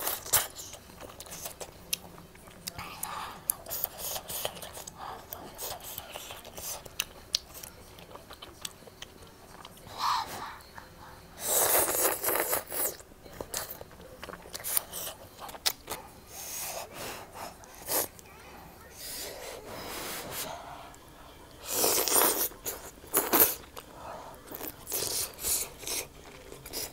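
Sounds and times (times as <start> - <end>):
person chewing with wet clicks: 0.0 - 9.9, 10.6 - 16.0, 20.9 - 26.9.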